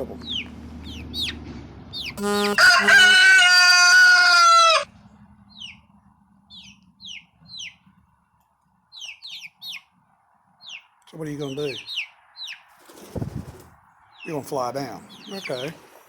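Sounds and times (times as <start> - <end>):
chicks peeping: 0.0 - 5.9, 6.5 - 15.9
rooster crowing: 2.2 - 4.9.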